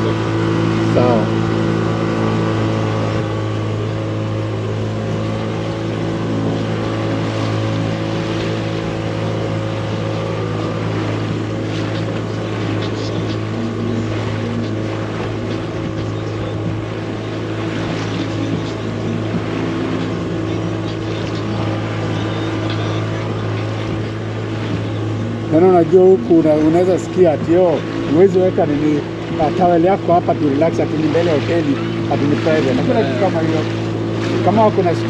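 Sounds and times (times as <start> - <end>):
motorboat engine hum: 0.0 - 35.0
water wash noise: 0.0 - 35.0.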